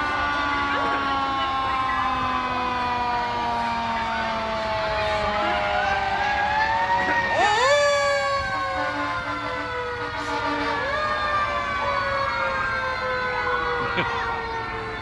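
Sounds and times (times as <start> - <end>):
fire truck sirens wailing: 0.0 - 15.0.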